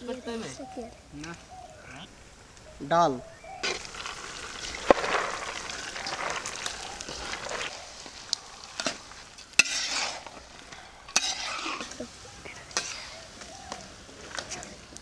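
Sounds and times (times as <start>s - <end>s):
spatula scraping a wok: 3.6s - 13.4s
meat sizzling in a wok: 3.6s - 14.9s.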